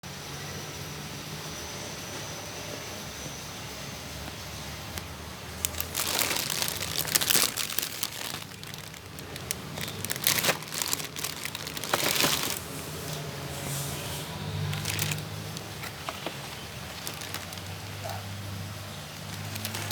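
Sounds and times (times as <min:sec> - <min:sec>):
plastic packaging crinkling: 0:04.9 - 0:13.2, 0:14.5 - 0:19.9.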